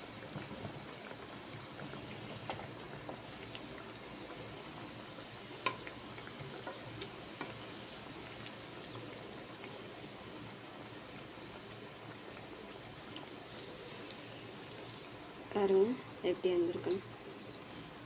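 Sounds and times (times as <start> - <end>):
cutlets sizzling in oil: 0.0 - 18.0.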